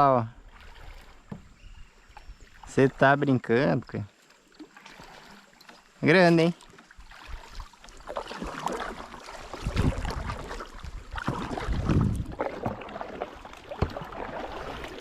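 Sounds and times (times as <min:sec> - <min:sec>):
water sloshing against hull: 0:00.0 - 0:15.0
paddle strokes: 0:00.4 - 0:03.1, 0:04.0 - 0:15.0
wind buffeting microphone: 0:09.6 - 0:12.4.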